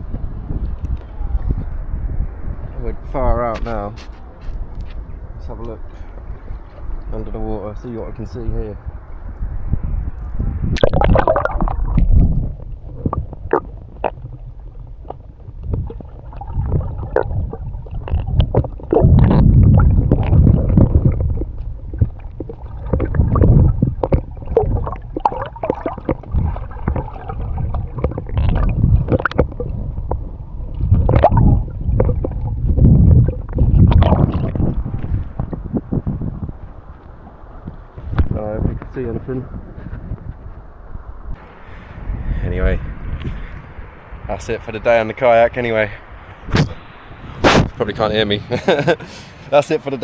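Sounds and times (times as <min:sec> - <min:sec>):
muffled underwater water sloshing: 0:10.5 - 0:38.2.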